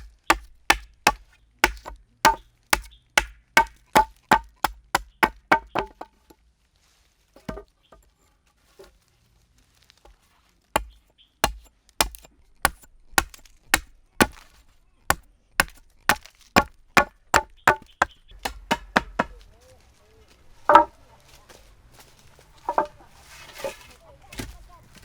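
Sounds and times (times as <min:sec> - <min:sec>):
wood being chopped: 0:00.0 - 0:06.2, 0:07.4 - 0:07.6, 0:10.8 - 0:19.5, 0:20.6 - 0:21.0, 0:22.7 - 0:22.9.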